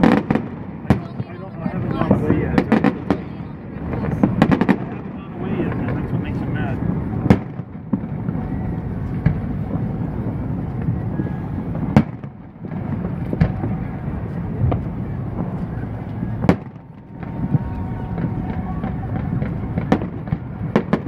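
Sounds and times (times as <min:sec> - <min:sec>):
continuous low rumble: 0:00.0 - 0:21.0
fireworks booming: 0:00.0 - 0:21.0.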